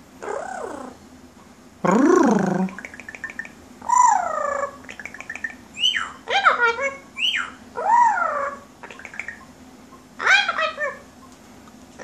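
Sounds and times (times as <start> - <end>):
parrot calling: 0.2 - 1.0, 2.0 - 9.5, 10.2 - 11.1.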